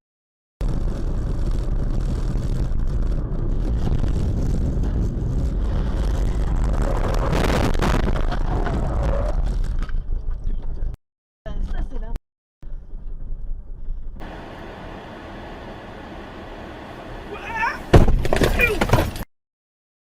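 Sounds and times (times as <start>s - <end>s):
vehicle driving rumble: 0.6s - 19.2s
noisy surge: 14.2s - 17.9s.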